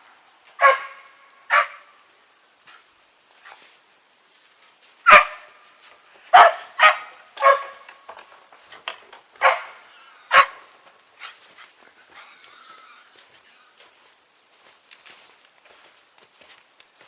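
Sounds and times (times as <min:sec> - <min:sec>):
dog barking: 0:00.6 - 0:01.9, 0:05.1 - 0:05.5, 0:06.3 - 0:07.9, 0:09.4 - 0:11.4.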